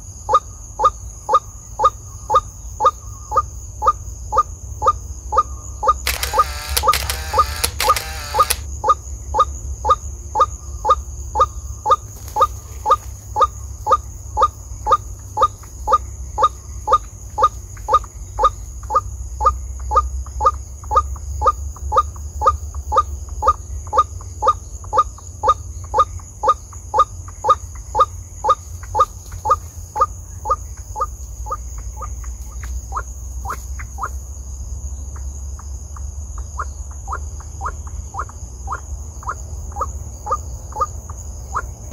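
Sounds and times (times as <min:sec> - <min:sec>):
high insect drone: 0:00.0 - 0:41.9.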